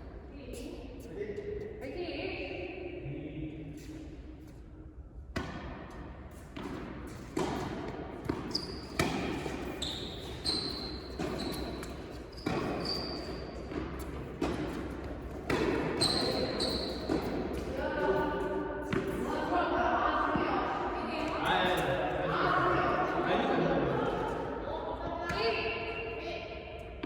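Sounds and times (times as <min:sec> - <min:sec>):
racket hitting tennis ball: 0:05.3 - 0:17.7
ball bouncing on court: 0:05.3 - 0:17.8, 0:18.8 - 0:19.3, 0:25.3 - 0:25.7
shoes squeaking on court: 0:06.3 - 0:17.8.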